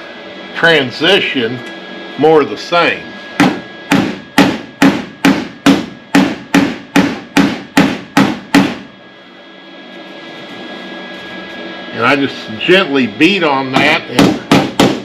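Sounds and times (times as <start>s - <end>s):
hammer tapping sheet steel: 3.4s - 8.9s.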